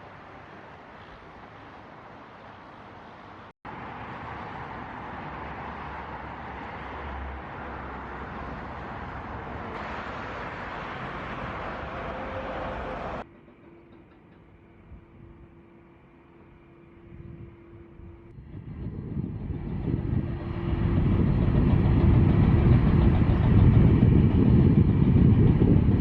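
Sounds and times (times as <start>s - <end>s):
jet engine rushing: 18.5s - 26.0s.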